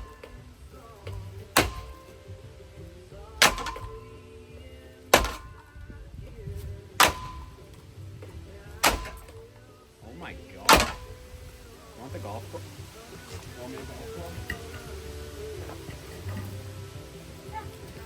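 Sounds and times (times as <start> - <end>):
bat striking ceiling fan: 1.1 - 2.2, 3.4 - 4.1, 5.1 - 5.7, 8.8 - 9.5, 10.6 - 11.7.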